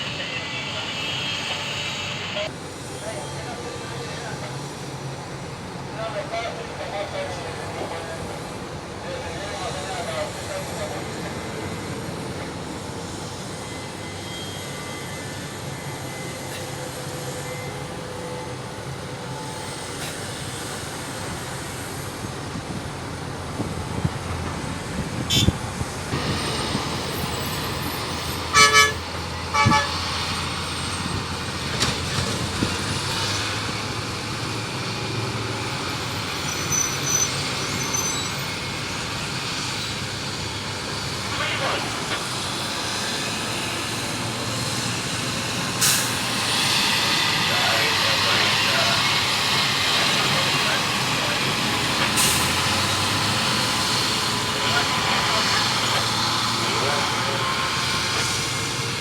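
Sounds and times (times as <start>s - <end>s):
heavy machinery engines running: 0.0s - 59.0s
vehicle horn toots: 25.3s - 25.6s, 28.5s - 30.0s.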